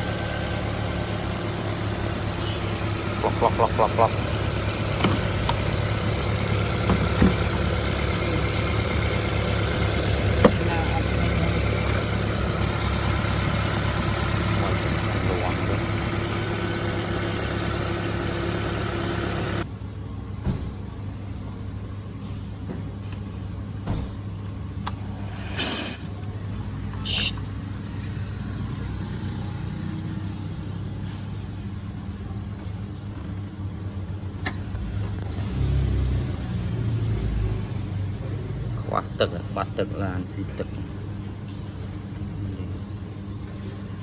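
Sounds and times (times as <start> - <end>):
car engine running: 0.0 - 19.7
short hissy bursts: 25.0 - 26.1.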